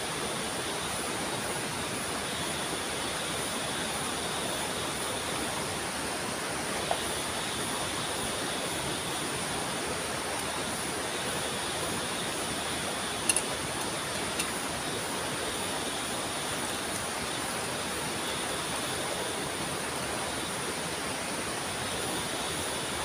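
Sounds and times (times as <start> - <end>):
rushing water: 0.0 - 23.0
faint high steady tones: 6.9 - 19.3.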